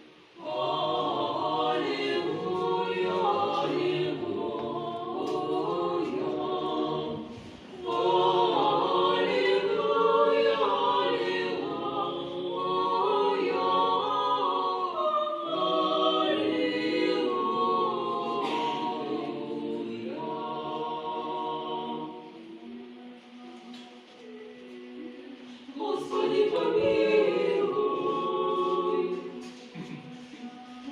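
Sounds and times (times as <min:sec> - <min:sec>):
choir singing held notes: 0:00.0 - 0:30.9.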